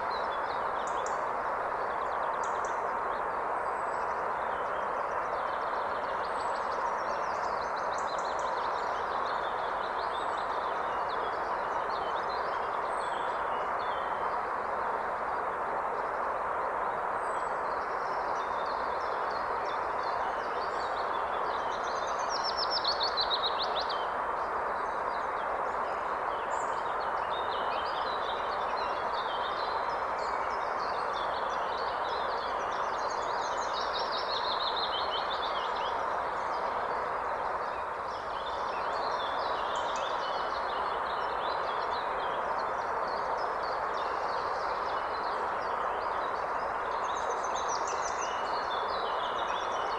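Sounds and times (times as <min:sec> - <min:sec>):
songbirds singing: 0:17.2 - 0:49.9.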